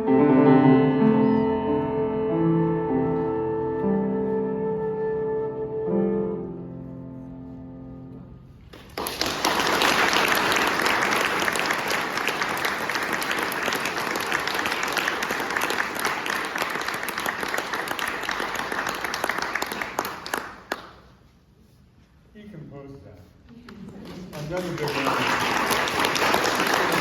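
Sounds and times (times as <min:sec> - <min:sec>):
audience applauding: 0:08.7 - 0:21.1, 0:24.0 - 0:27.0.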